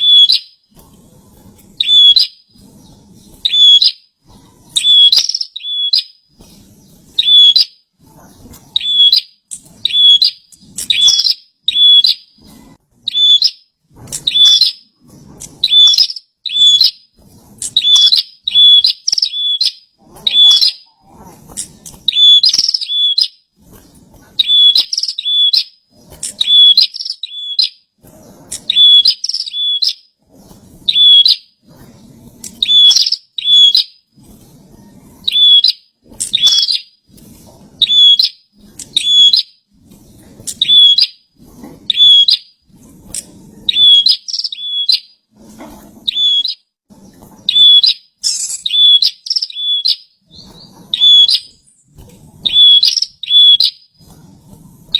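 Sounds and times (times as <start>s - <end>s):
songbird chirping: 4.8s - 6.2s, 8.8s - 12.3s, 17.7s - 20.9s, 24.4s - 25.7s, 26.3s - 27.8s, 28.6s - 30.0s, 47.5s - 51.7s.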